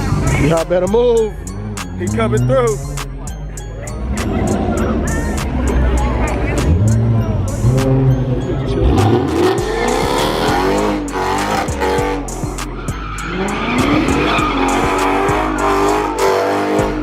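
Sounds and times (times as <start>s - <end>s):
car engine revving: 0.0s - 17.0s
tyres squealing: 9.3s - 16.9s.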